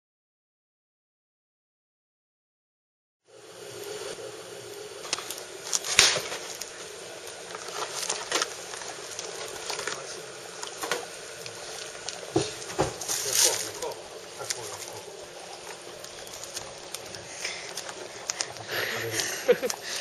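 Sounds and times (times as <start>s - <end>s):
campfire crackling: 3.3s - 20.0s
sharp pops of burning wood: 5.0s - 10.0s, 10.6s - 18.7s.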